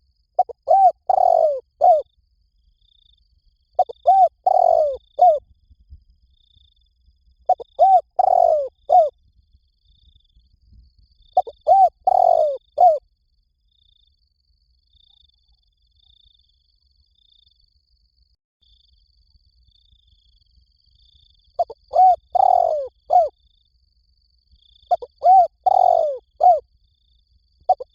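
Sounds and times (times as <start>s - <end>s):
dove cooing: 0.4s - 2.0s, 3.8s - 5.4s, 7.5s - 9.1s, 11.4s - 13.0s, 21.6s - 23.3s, 24.9s - 26.6s, 27.7s - 27.9s.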